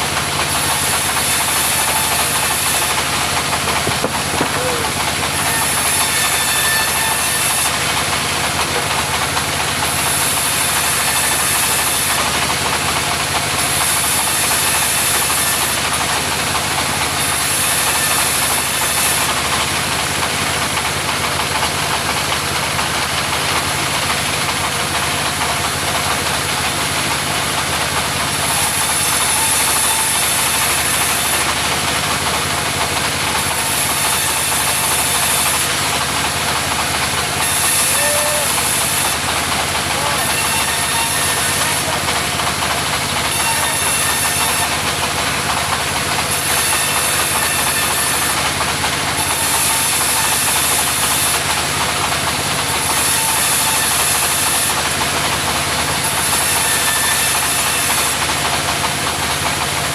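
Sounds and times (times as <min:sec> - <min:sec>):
sawmill engine running: 0:00.0 - 0:59.9
saw cutting timber hiss: 0:00.1 - 0:59.9.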